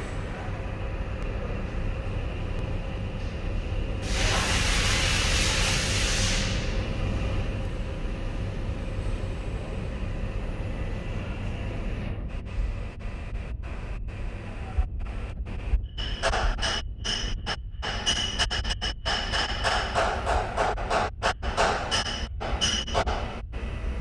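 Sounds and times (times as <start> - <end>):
steady low rumble: 0.0 - 17.9
compressed air hiss: 4.0 - 6.9.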